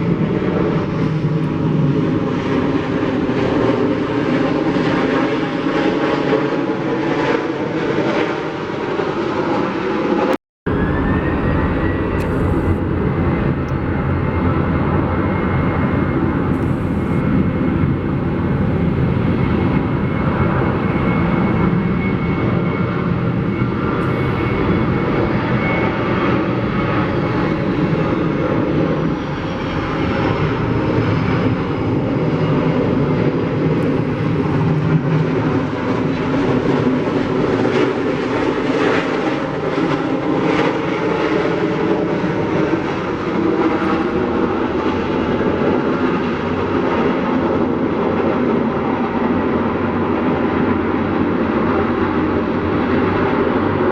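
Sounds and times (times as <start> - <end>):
jet engines rumbling: 0.0 - 53.9
high engine whine: 10.7 - 48.0.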